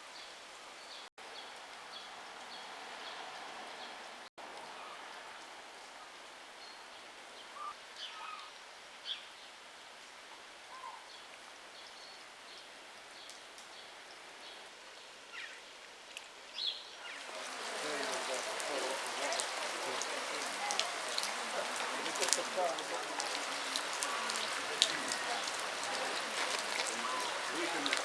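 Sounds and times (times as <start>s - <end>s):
faint outdoor hiss: 0.0s - 28.0s
birds chirping: 16.6s - 28.0s.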